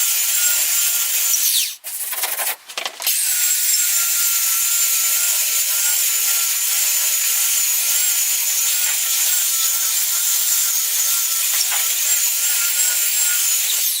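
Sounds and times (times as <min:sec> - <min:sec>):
sander motor whine: 0:03.2 - 0:13.8.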